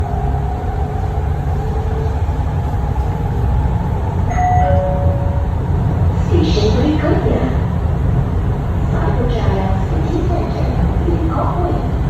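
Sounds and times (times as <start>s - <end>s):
train rumbling: 0.0s - 12.0s
two-note falling chime: 4.3s - 5.4s.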